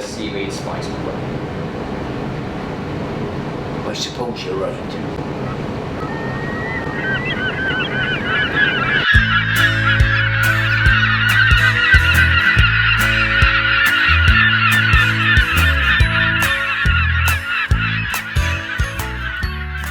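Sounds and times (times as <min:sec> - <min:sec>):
gulls calling: 0:00.0 - 0:19.9
music with bass and drum beat: 0:09.2 - 0:19.9.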